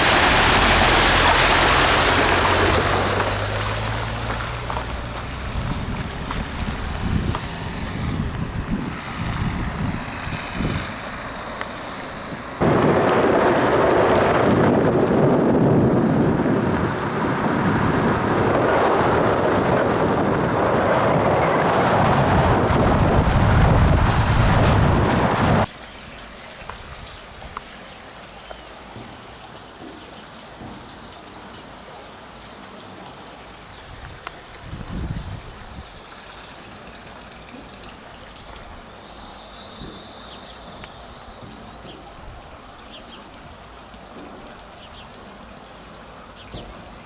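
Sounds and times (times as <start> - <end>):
quiet water flow: 0.0 - 13.0, 25.6 - 47.0
water rushing loudly: 0.0 - 29.8, 30.4 - 47.0.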